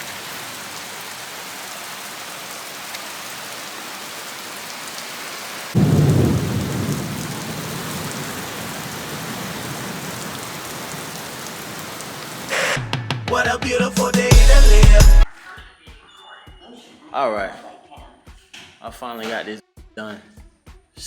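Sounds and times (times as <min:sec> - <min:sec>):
rain hissing: 0:00.0 - 0:12.8
thunder rumbling: 0:05.8 - 0:12.2.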